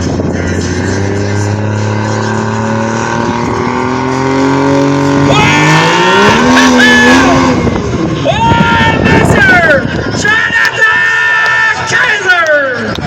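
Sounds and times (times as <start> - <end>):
vehicle engine under load: 0.0 - 8.3.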